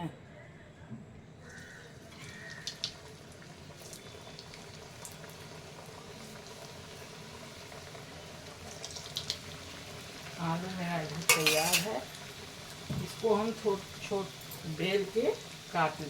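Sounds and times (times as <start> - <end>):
food bubbling on stove: 1.6 - 16.0.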